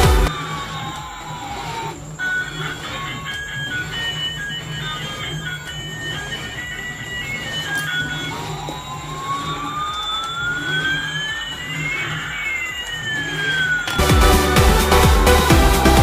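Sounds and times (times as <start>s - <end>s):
dance beat: 0.0s - 0.3s, 14.0s - 16.0s
low hum: 0.0s - 16.0s
rising and falling synth tones: 0.0s - 16.0s.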